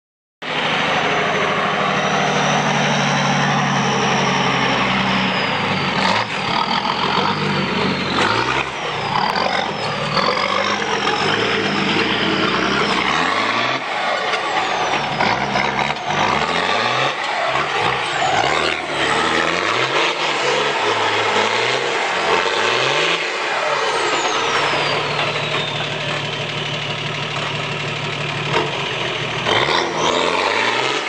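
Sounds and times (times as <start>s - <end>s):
vehicle engine revving under load: 0.4s - 31.0s.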